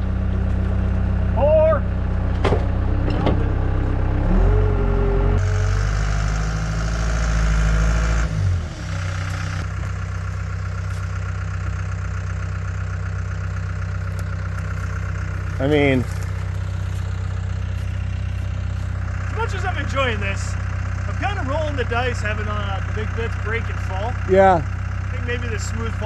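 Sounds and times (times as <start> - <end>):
diesel engine running: 0.0 - 26.0
hydraulic whine: 1.9 - 11.5.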